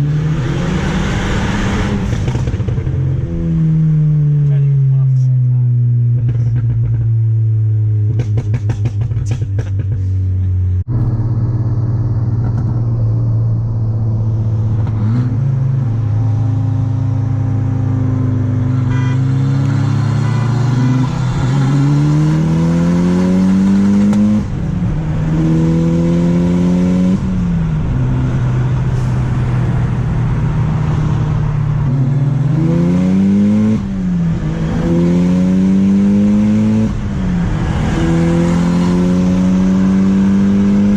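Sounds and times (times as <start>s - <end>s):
car engine revving through gears: 0.0s - 4.0s, 14.3s - 40.9s.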